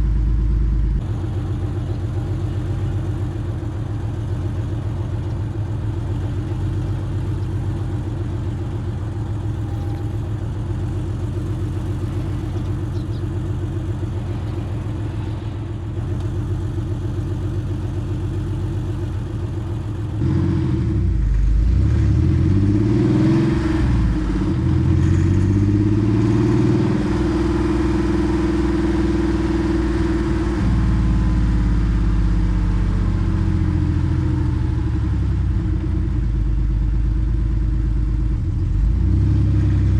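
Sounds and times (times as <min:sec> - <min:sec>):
car engine revving: 0:01.0 - 0:31.1.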